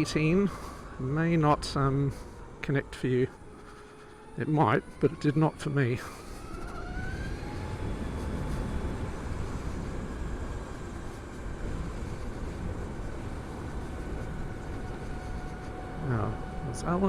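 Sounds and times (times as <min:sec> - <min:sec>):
wind rushing over microphone: 0:04.2 - 0:17.0
electric motor whine: 0:06.0 - 0:17.0.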